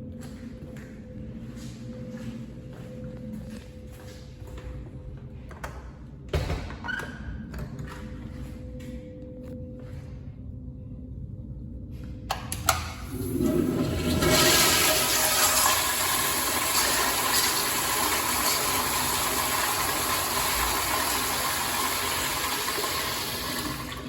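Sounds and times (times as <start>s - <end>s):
toilet flushing: 13.0s - 24.0s.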